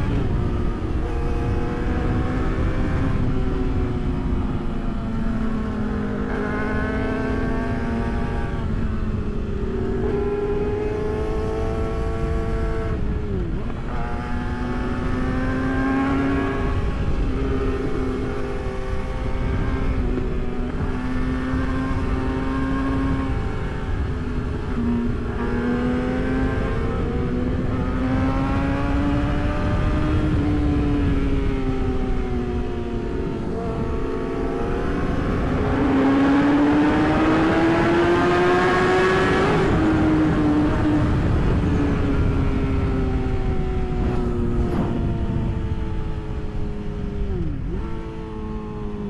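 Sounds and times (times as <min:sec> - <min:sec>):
motorcycle engine running: 0:00.0 - 0:49.0
wind rush on microphone: 0:00.0 - 0:49.0.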